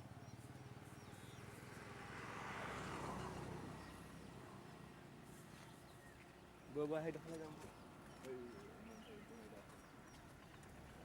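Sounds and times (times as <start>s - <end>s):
rushing noise of passing vehicle: 1.8s - 3.8s.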